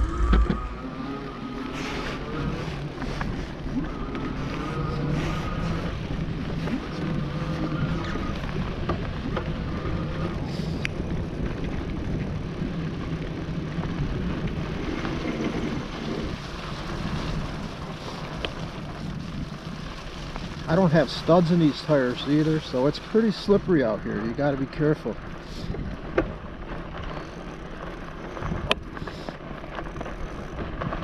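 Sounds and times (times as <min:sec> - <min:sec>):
wind on microphone: 0:00.0 - 0:24.4
tyres on slushy snow and mud: 0:00.0 - 0:31.0
bike clicks and knocks: 0:25.7 - 0:31.0.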